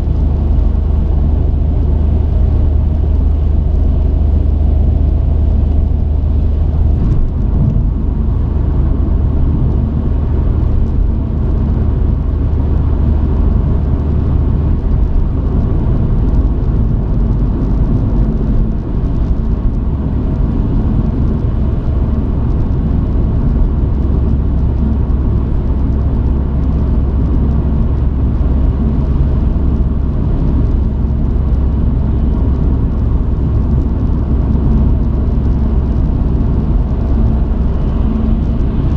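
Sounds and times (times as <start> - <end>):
truck engine and road rumble: 0.0 - 38.9.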